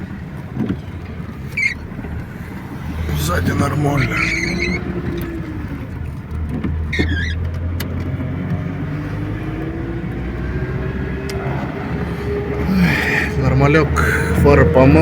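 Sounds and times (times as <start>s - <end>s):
truck engine running: 0.0s - 15.0s
high squeak: 1.5s - 1.9s, 4.0s - 4.9s, 6.9s - 7.4s.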